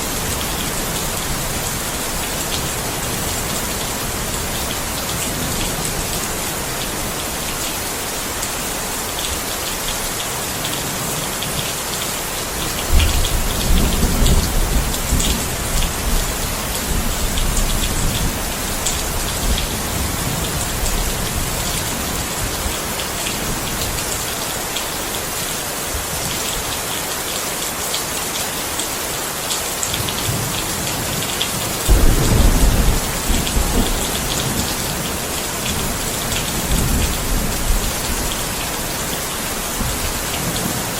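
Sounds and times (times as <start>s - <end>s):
rain drops ticking: 0.0s - 40.9s
thunder rumbling: 31.9s - 38.6s.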